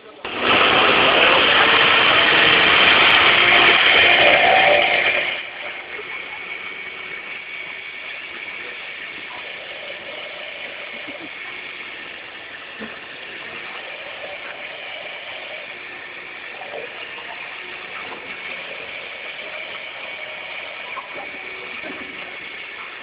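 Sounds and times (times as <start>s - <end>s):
electric blender whirring: 0.2s - 23.0s.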